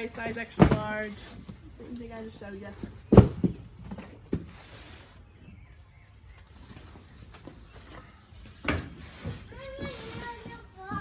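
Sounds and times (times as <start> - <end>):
thumps: 2.8 - 4.6.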